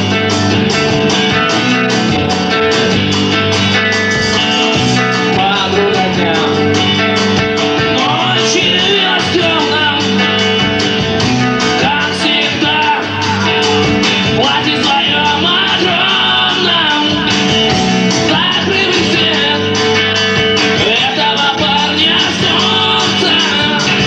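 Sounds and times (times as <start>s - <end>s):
bass guitar: 0.0s - 24.0s
distorted electric guitars: 0.0s - 24.0s
drums playing a steady beat: 0.0s - 24.0s
person singing: 4.9s - 24.0s.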